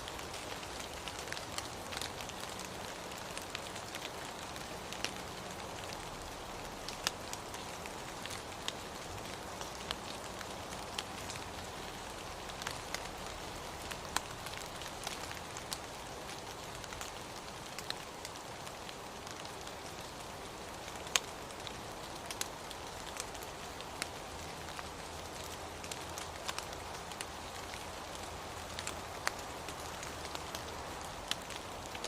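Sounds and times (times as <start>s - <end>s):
steady rain hiss: 0.0s - 32.0s
raindrops tapping: 20.8s - 32.0s.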